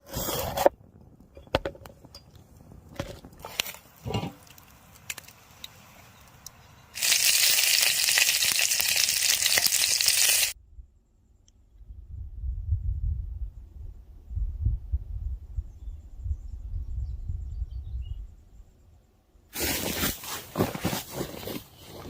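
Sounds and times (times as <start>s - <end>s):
clicks and crackles: 0.6s - 10.6s.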